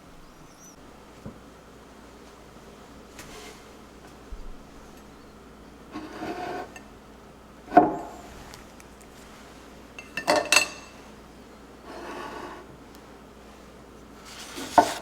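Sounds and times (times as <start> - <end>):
dishes scraping: 5.9 - 6.9, 10.0 - 11.0, 11.9 - 12.7, 14.2 - 15.0
dishes clinking: 10.0 - 11.0.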